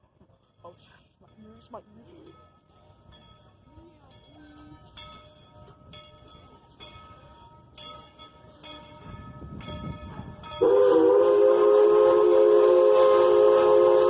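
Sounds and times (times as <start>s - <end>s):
locomotive bell ringing: 0.4s - 11.8s
loud steam whistle: 10.6s - 14.0s.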